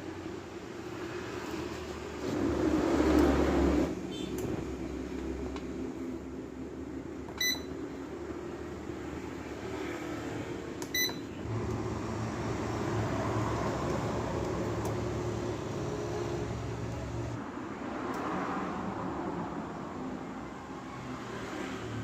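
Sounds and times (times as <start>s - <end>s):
short electronic beep: 7.4s - 7.7s
motor hum: 11.0s - 17.4s.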